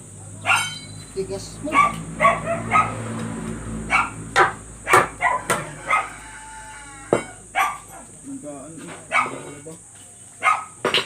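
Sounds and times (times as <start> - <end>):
dog barking: 0.4 - 0.8, 1.7 - 3.1, 3.9 - 6.2, 7.5 - 8.1, 9.1 - 9.5, 10.4 - 10.8.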